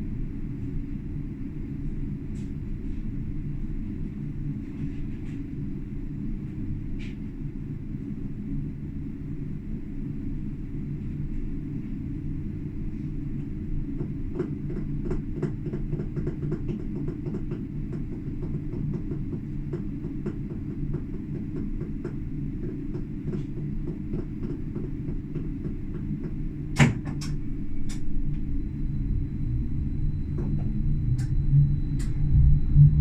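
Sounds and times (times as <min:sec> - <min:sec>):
tram rumbling on track: 0:27.2 - 0:33.0.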